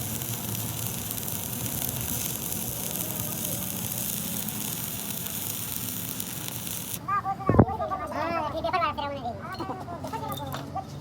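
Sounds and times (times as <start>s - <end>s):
welding arc crackling hiss: 0.0s - 7.1s.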